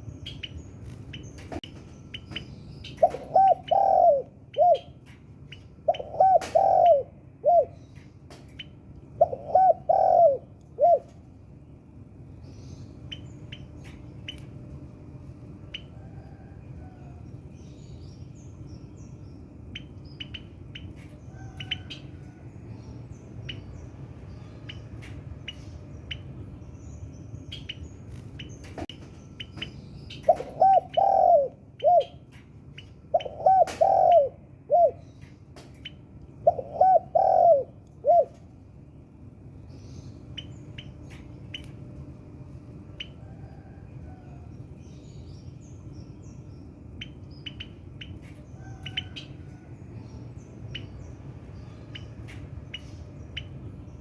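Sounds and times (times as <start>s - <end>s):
small birds chirping: 0.0s - 14.8s, 15.6s - 54.0s
dove cooing: 3.0s - 5.0s, 5.9s - 7.8s, 9.2s - 11.2s, 30.2s - 32.2s, 33.1s - 35.1s, 36.4s - 38.4s.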